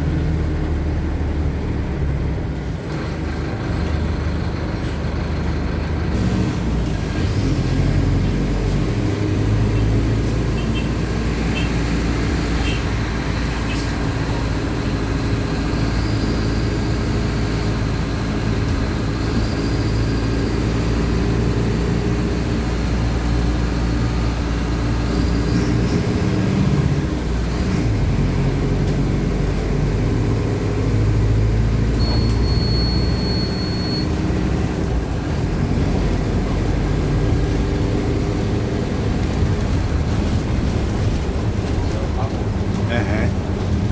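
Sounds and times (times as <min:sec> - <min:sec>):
bus diesel engine running: 0:00.0 - 0:43.9
short high beep: 0:32.0 - 0:34.2.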